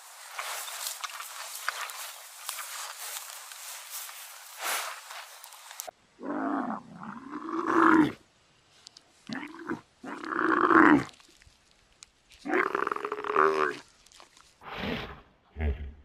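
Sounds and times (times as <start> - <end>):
faint hiss: 0.0 - 5.9.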